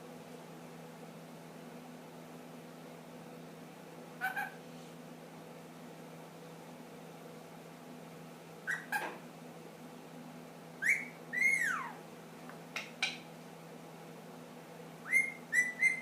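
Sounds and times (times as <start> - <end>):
parakeet whistling and calling: 4.2 - 4.6, 8.6 - 9.1, 10.8 - 12.0, 15.0 - 16.0.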